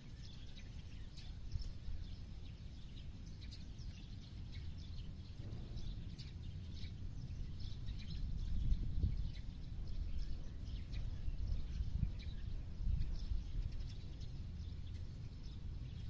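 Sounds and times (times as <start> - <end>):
birds chirping and calling: 0.0 - 16.0
steady low rumble: 0.0 - 16.0.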